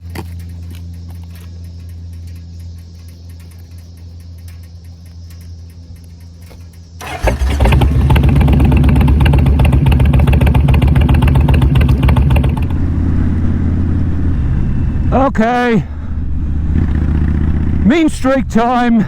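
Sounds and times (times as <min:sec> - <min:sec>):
motorcycle engine starting and running: 0:00.0 - 0:18.6.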